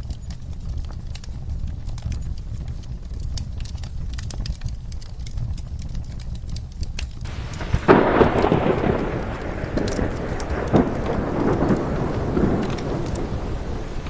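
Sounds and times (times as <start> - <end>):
wood fire crackling: 0.0 - 14.0
rain hiss: 7.2 - 14.0
thunderclap rumbling: 7.2 - 14.0.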